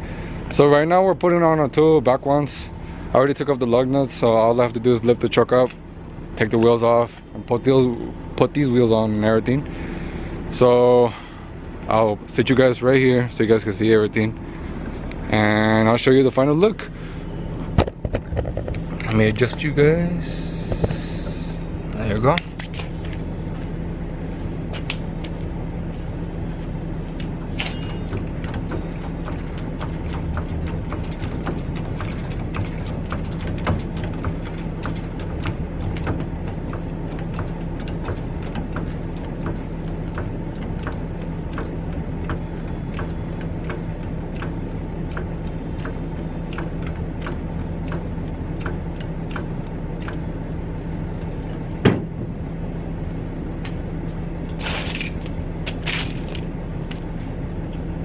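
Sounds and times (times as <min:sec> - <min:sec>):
low mechanical hum: 0:00.0 - 0:58.0
scattered clicks and knocks: 0:17.8 - 0:19.6, 0:27.1 - 0:50.4.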